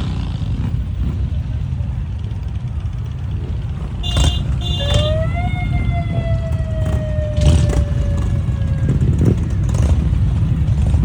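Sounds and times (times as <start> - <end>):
motorcycle engines rumbling: 0.0 - 11.0
siren-like wail: 4.6 - 9.7.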